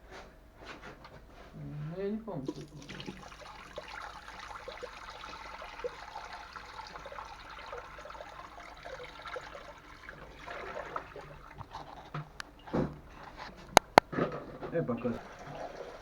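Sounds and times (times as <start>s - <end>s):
water trickling from a pipe: 2.4s - 13.5s, 15.0s - 16.0s.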